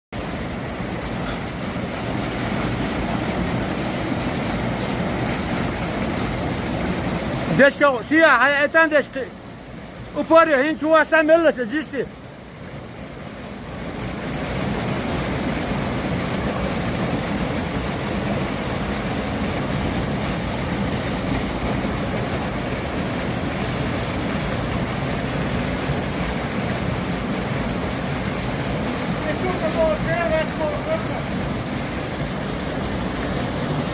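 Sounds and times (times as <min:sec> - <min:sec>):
waterfall rushing: 0:00.2 - 0:33.9.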